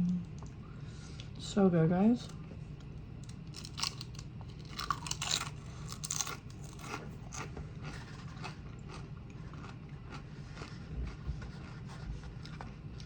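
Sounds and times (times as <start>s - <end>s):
crunching tortilla chips: 3.2s - 13.0s.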